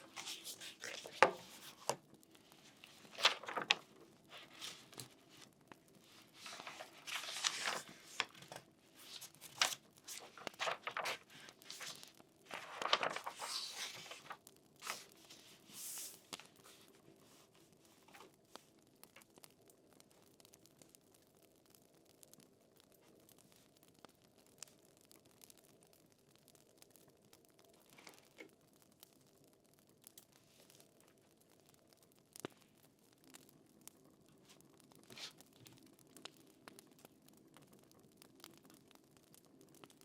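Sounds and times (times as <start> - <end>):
paper rustling and crinkling: 0.0 - 18.7, 34.4 - 35.8.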